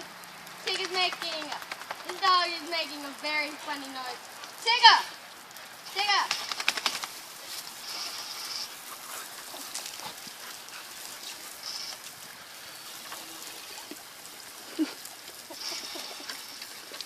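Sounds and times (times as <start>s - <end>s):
running water splashing: 0.0s - 17.0s
dog snapping at water: 0.7s - 2.2s, 6.2s - 7.2s.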